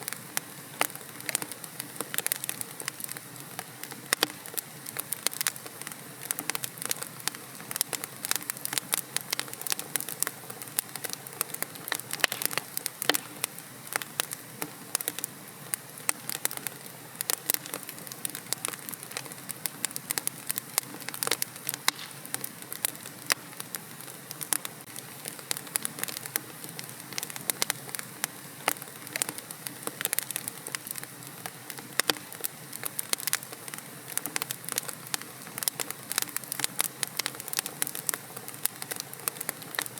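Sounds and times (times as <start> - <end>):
fire hissing: 0.0 - 39.9
wood fire crackling: 0.0 - 39.9.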